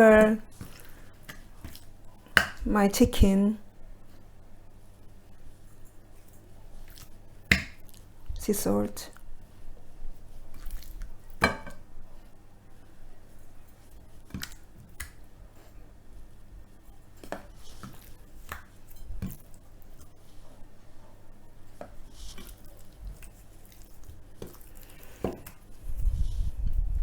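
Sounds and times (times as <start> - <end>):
soft rustles: 21.9 - 27.0.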